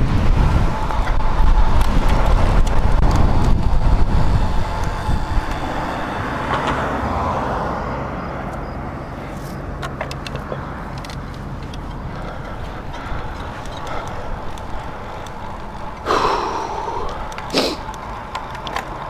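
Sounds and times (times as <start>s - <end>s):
wind noise on microphone: 0.0s - 9.7s
traffic: 0.0s - 19.0s
light ticks: 9.8s - 16.1s.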